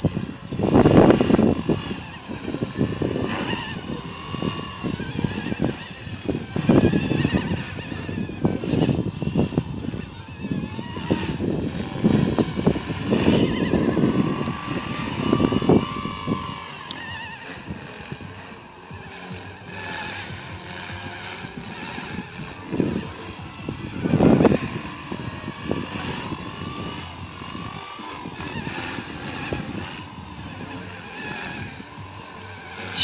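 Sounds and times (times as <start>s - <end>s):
rc helicopter motor whine: 0.0s - 33.0s
wind buffeting microphone: 0.0s - 33.0s.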